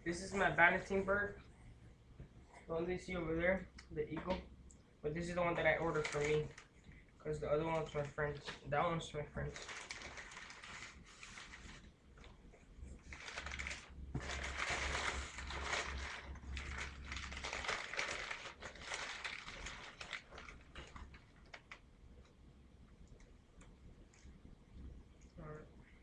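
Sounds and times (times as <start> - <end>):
packaging rustling and crackling: 5.3 - 6.8, 9.4 - 12.4, 13.0 - 21.9.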